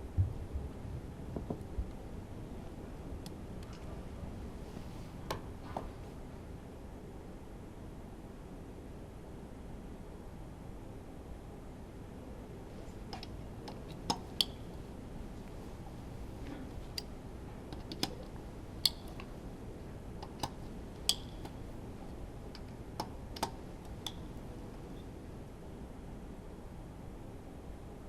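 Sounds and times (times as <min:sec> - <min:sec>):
low background hiss: 0:00.0 - 0:28.0
tools clicking and clinking: 0:17.7 - 0:19.4, 0:20.2 - 0:21.7, 0:22.5 - 0:24.5.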